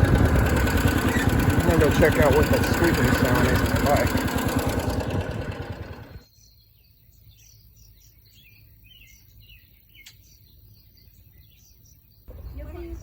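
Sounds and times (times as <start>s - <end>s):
small motorbike engine: 0.0s - 6.3s, 12.3s - 13.0s
birds chirping: 0.0s - 13.0s.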